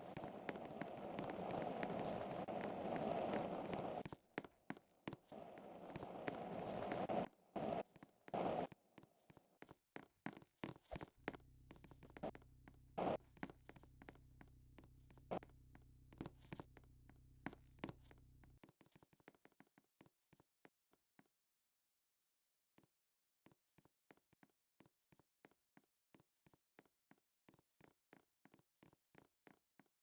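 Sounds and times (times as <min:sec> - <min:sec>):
low steady hum: 0:11.1 - 0:18.6.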